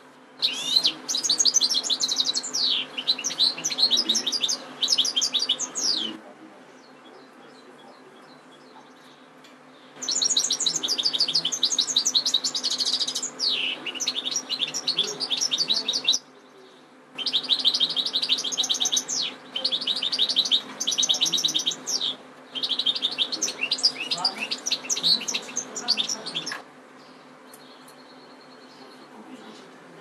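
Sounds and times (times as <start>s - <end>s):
goldfinch twittering song: 0.4s - 6.1s, 10.0s - 16.3s, 17.2s - 29.0s.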